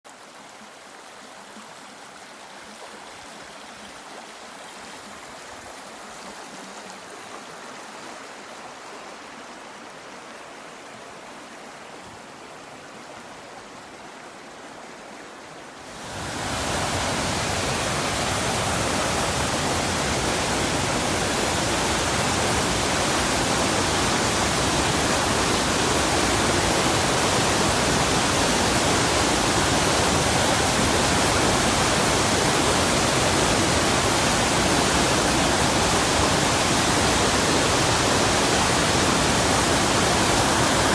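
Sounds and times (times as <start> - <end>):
fast-flowing river rushing: 15.8 - 40.9.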